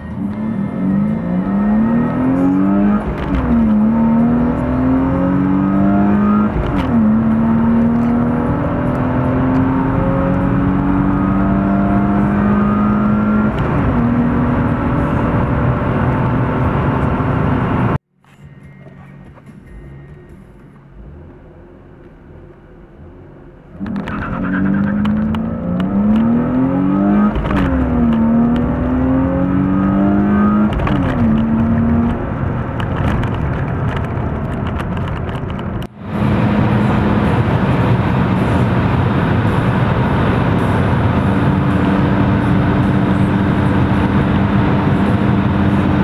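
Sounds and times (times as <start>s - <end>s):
car engine accelerating: 0.0s - 18.0s, 18.8s - 46.0s
wind noise at speed: 0.0s - 18.0s, 23.8s - 46.0s.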